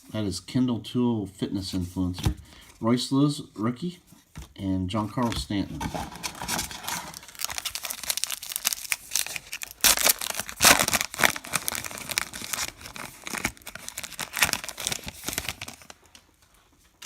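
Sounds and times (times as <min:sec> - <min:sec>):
foil wrapper tearing and crinkling: 0:06.2 - 0:16.0.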